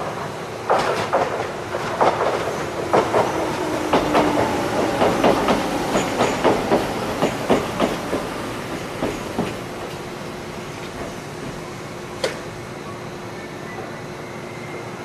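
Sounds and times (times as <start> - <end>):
train wheels clacking over joints: 0.7 - 10.1.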